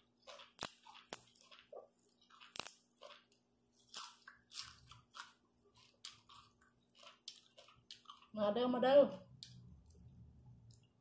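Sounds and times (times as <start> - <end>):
crunchy chewing of raw herbs: 0.0 - 8.4.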